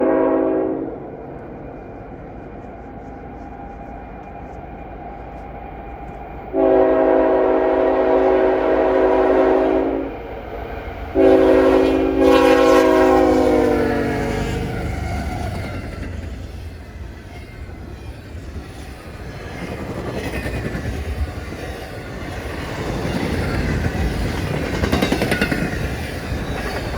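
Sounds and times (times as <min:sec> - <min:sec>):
locomotive air horn blowing: 0:00.0 - 0:01.0, 0:06.5 - 0:10.2, 0:11.2 - 0:14.9
low rumble of train: 0:00.0 - 0:26.9.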